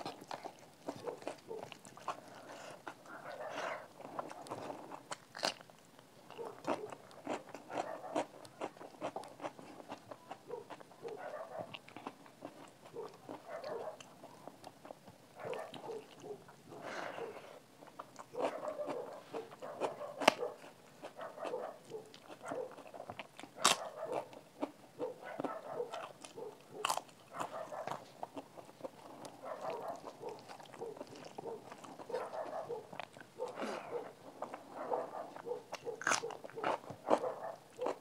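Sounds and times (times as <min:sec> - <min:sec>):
wet chewing: 0:00.0 - 0:38.0
sharp crunches: 0:35.7 - 0:38.0.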